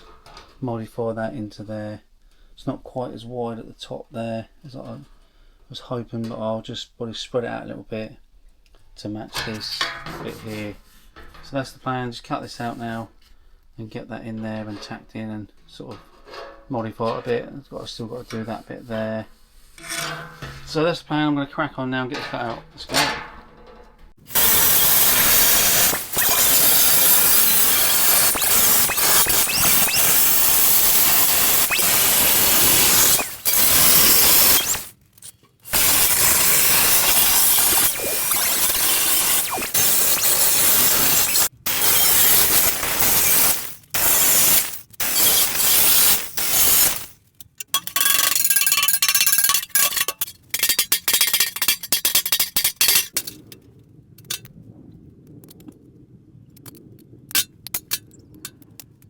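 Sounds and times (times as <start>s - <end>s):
power cutter slicing sheet steel: 19.8s - 20.9s, 24.2s - 34.9s, 35.7s - 47.2s.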